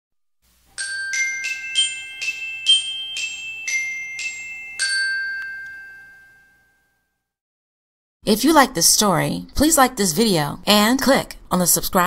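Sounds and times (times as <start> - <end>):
glockenspiel-like bell tune: 0.7 - 7.2.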